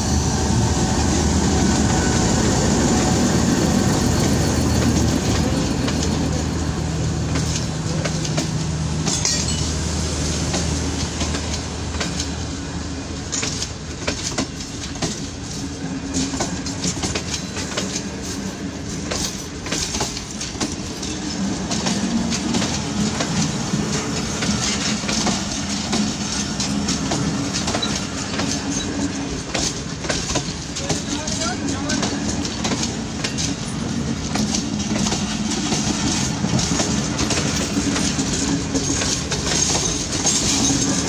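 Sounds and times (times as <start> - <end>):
train coaches rumbling past: 0.0 - 41.0
wheels clicking over rail joints: 4.0 - 41.0.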